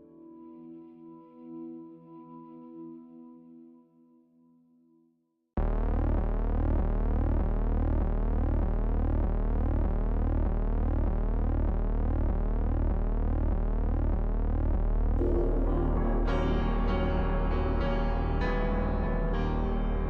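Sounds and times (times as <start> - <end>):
pulsing deep bass: 5.6 - 20.0
synthesizer drone: 5.6 - 20.0.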